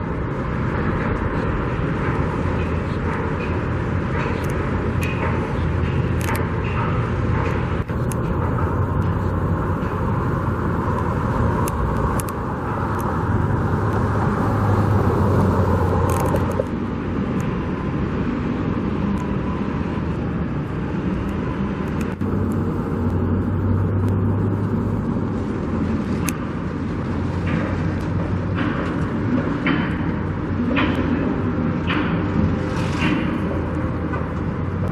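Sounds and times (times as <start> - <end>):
road traffic noise: 0.0 - 34.9
vehicles passing: 0.0 - 34.9.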